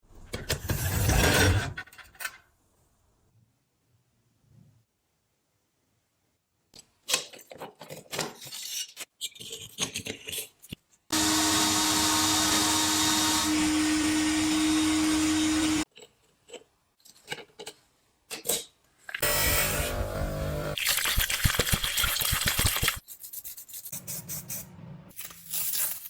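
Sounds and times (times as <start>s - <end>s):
electric power tool running: 11.1s - 15.8s, 19.2s - 20.8s.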